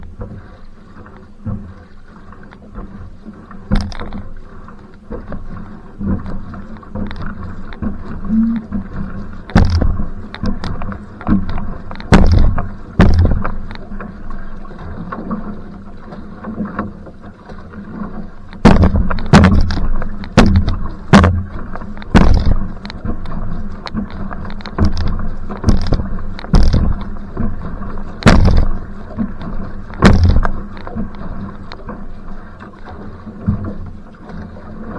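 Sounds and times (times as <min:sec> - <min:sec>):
paddle knocks and splashes: 0:00.0 - 0:34.9
water rushing: 0:00.0 - 0:34.9
wind buffeting microphone: 0:18.6 - 0:23.1, 0:28.2 - 0:30.9.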